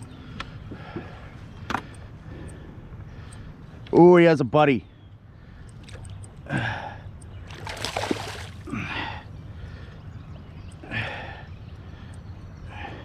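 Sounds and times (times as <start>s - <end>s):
water sloshing around kayak: 7.4s - 8.7s.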